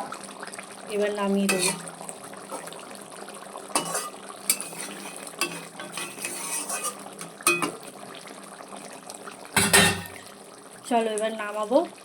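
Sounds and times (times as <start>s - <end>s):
faint sizzle: 0.0s - 12.0s
spoon stirring curry: 3.8s - 7.8s
metal spoon clinking against pan: 5.4s - 7.8s.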